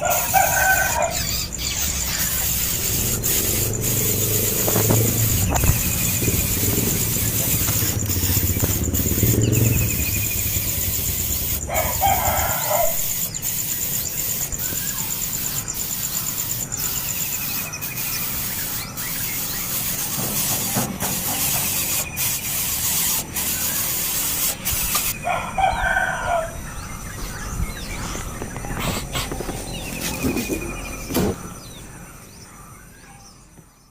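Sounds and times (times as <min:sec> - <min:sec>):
rooster crowing: 0:00.0 - 0:01.4, 0:11.7 - 0:13.2, 0:25.2 - 0:26.7
steady high buzz: 0:00.0 - 0:32.9
small bird chirping: 0:00.0 - 0:33.9.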